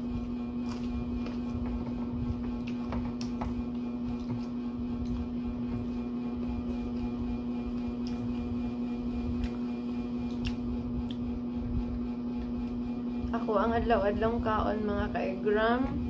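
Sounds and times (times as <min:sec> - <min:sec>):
lettuce being chewed: 0:00.0 - 0:11.4
appliance hum: 0:00.0 - 0:16.0.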